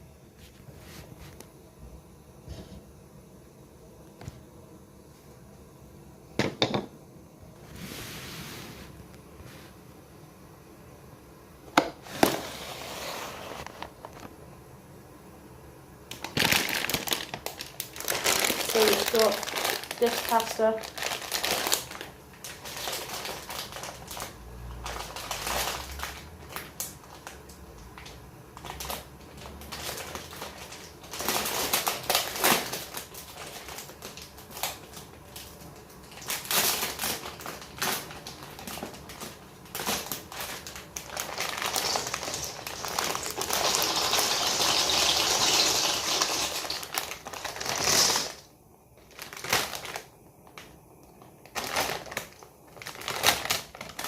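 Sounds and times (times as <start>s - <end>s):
dry pasta rattling: 16.1s - 50.1s, 51.4s - 54.0s
plastic packet crinkling: 16.1s - 54.0s.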